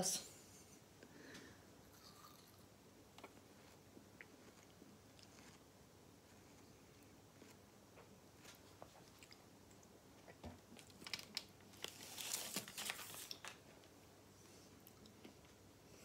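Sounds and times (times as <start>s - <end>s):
watermelon being chewed: 1.9s - 10.9s.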